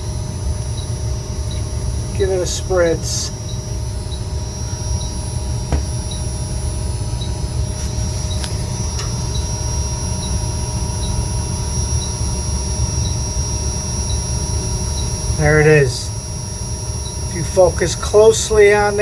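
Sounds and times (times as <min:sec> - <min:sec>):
low machinery rumble: 0:00.0 - 0:12.1
high-pitched whine tones: 0:00.0 - 0:19.0.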